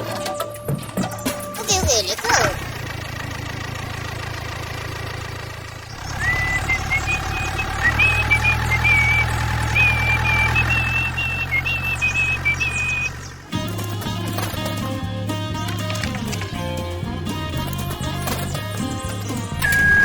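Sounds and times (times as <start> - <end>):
low engine rumble: 0.1 - 20.0
high tune of held notes: 6.1 - 14.0, 15.7 - 20.0.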